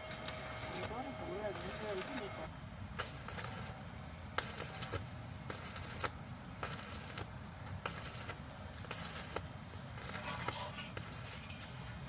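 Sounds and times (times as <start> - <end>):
metallic clicks and crackles: 4.4 - 12.0.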